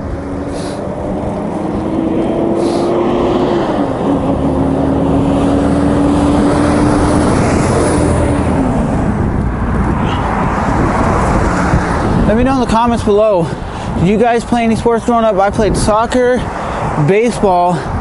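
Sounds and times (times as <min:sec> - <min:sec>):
vehicle engine tone: 0:00.0 - 0:12.7
wind and road noise: 0:00.0 - 0:18.0.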